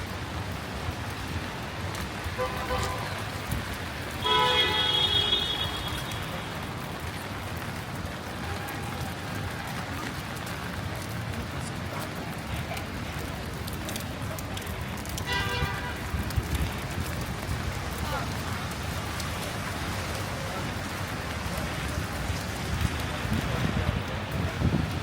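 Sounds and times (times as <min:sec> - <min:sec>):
heavy rain on street: 0:00.0 - 0:25.0.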